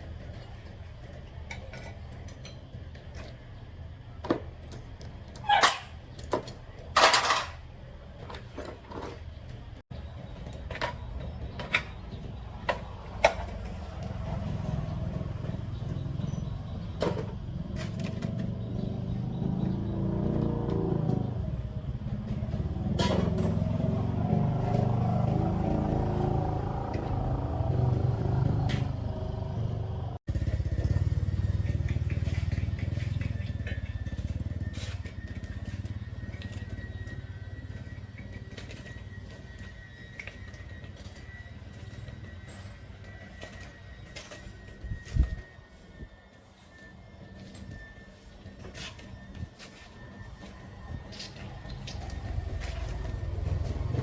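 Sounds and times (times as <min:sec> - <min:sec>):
small engine running: 0:17.6 - 0:54.0.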